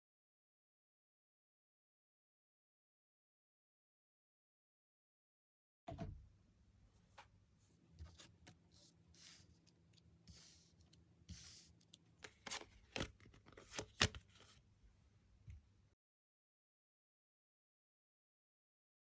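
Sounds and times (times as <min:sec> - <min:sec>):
cards sliding: 0:08.0 - 0:14.6.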